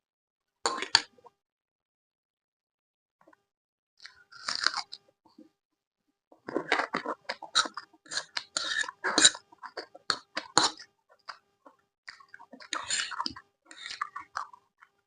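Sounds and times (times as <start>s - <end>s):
crunching and chewing food: 0.7s - 1.4s, 4.0s - 5.5s, 6.4s - 15.0s.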